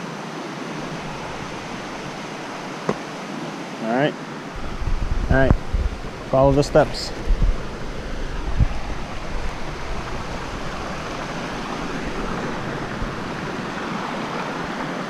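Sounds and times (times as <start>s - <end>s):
water rushing over small waterfall: 0.0s - 15.0s.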